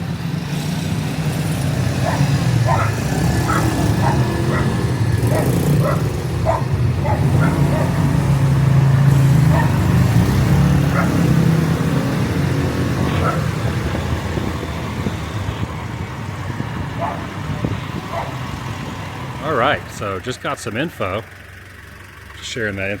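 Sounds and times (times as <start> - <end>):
vehicle engine running: 0.0 - 23.0
dog barking: 2.0 - 8.3, 9.4 - 11.4, 13.1 - 13.6, 17.0 - 17.4, 18.0 - 18.4.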